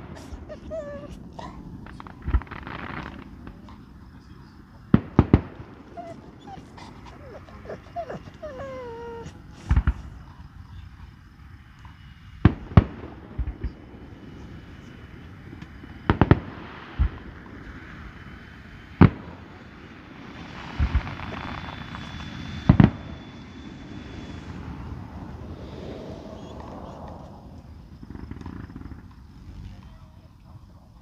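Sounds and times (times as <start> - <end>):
fireworks bangs: 0.0 - 6.8, 15.8 - 18.0, 20.6 - 21.7
fireworks crackling hiss: 0.0 - 6.8, 11.2 - 22.9.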